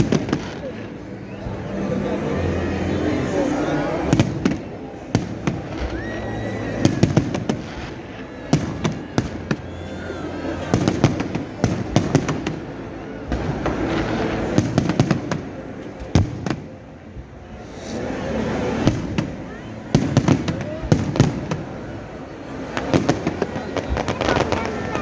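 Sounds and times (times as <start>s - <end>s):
fireworks bangs and crackles: 0.0s - 25.0s
people's voices: 0.0s - 25.0s.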